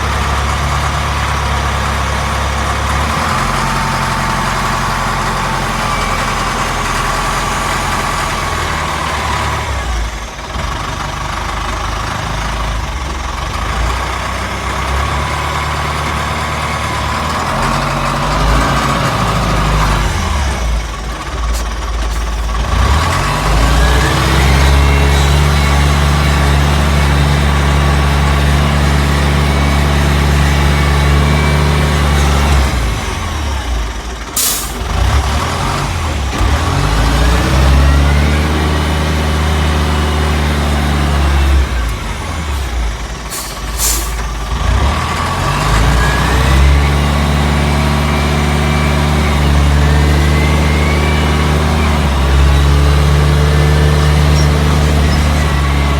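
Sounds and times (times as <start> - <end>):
diesel engine under load: 0.0 - 55.9
short hisses: 21.5 - 22.6, 34.4 - 34.8, 43.3 - 44.3.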